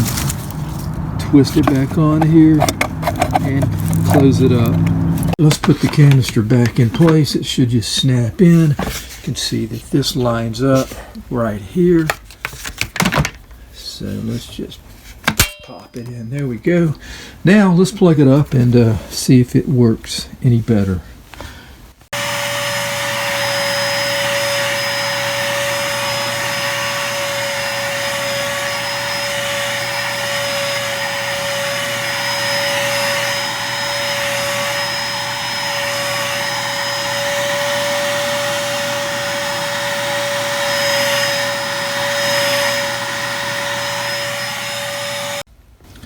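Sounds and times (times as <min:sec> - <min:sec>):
vacuum cleaner running on carpet: 0:01.3 - 0:05.4, 0:22.2 - 0:45.5.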